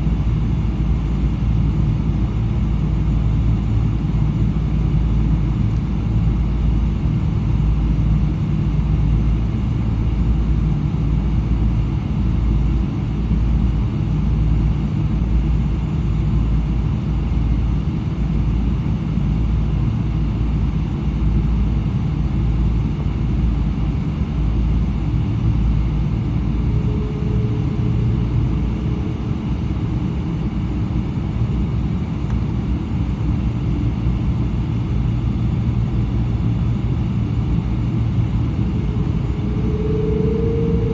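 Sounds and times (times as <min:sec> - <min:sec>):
airplane cabin engine rumble: 0:00.0 - 0:40.9
faint steady tones: 0:23.1 - 0:40.9.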